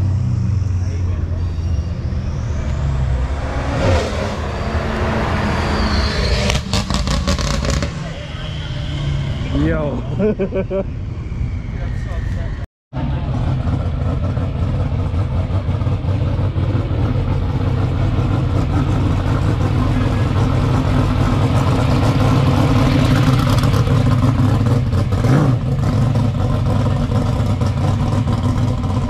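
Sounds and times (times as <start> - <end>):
car engine driving past: 0.0 - 10.2.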